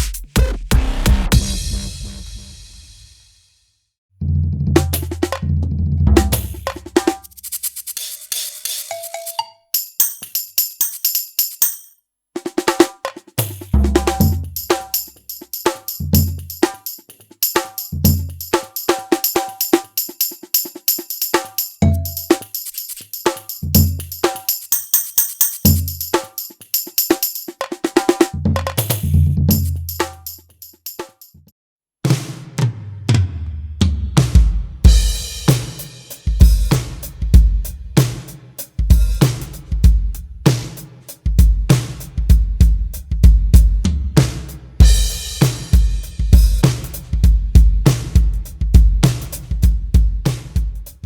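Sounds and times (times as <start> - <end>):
deep kick drum hits: 0.0 - 2.6
electronic drum kit groove: 0.0 - 3.2, 4.8 - 5.5, 6.1 - 11.8, 12.4 - 31.3, 34.2 - 51.0
crash cymbal: 0.0 - 3.6, 34.8 - 39.8, 44.8 - 47.2.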